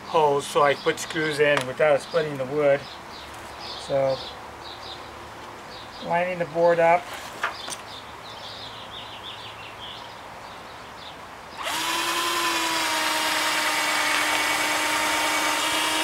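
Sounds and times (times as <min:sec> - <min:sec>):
cordless drill whining: 0:11.6 - 0:16.0.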